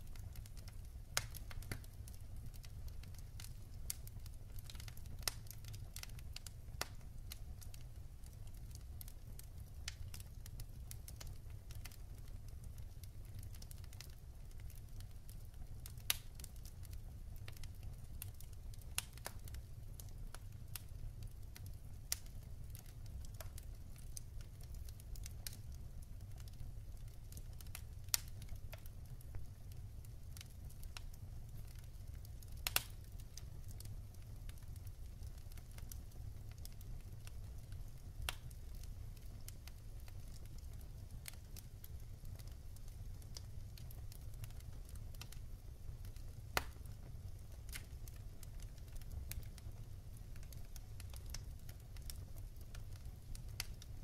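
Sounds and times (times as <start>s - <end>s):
fire crackling and popping: 0.0s - 54.0s
low rumble of fire: 0.0s - 54.0s.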